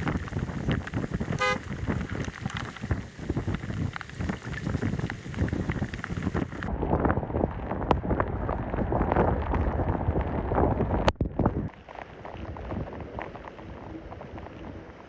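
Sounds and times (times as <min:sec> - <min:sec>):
driving rain: 0:00.0 - 0:06.7, 0:11.7 - 0:15.0
strong wind buffeting microphone: 0:00.0 - 0:15.0.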